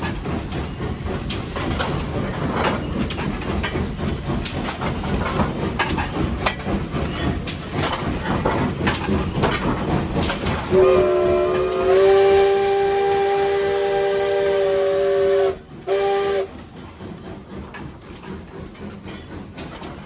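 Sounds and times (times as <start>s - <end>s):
sharp clanks and clicks: 0.0s - 10.8s, 16.6s - 20.0s
locomotive engine rumbling: 0.0s - 20.0s
steam whistle chord: 10.8s - 16.5s.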